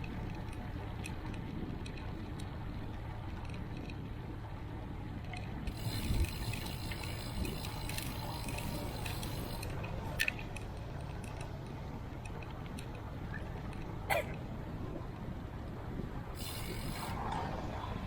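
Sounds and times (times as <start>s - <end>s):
wind and road rumble: 0.0s - 18.0s
hiss with fine ticking: 16.4s - 17.2s.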